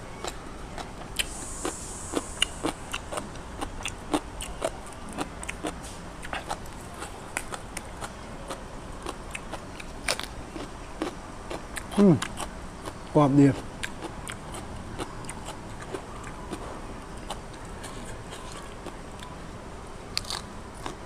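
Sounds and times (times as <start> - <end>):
chewing crisp raw greens: 0.2 - 19.5, 20.1 - 21.0.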